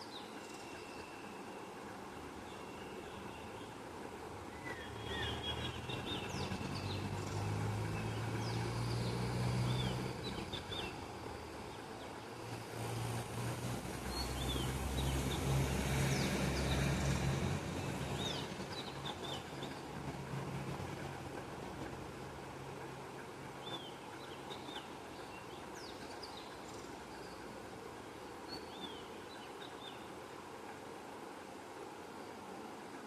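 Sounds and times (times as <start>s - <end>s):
low engine hum: 3.0s - 29.1s.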